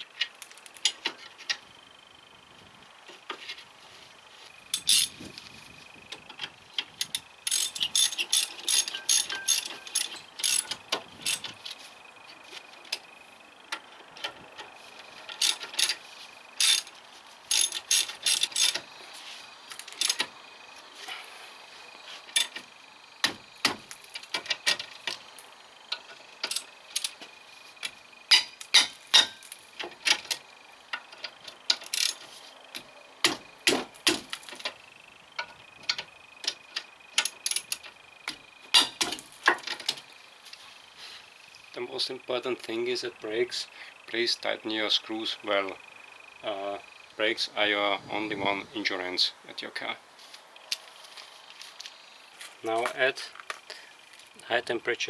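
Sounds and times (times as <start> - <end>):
ratchet wrench clicking: 4.8 - 5.2, 6.9 - 11.5, 15.3 - 16.0, 16.6 - 16.9, 17.5 - 18.9, 19.7 - 20.3, 22.3 - 22.6, 25.9 - 27.2, 31.7 - 32.3, 37.2 - 37.8.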